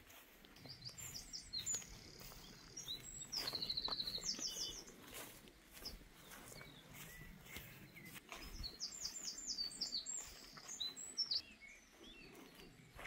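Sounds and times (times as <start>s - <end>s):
faint outdoor background noise: 0.0s - 13.0s
songbird chirping: 0.0s - 13.0s.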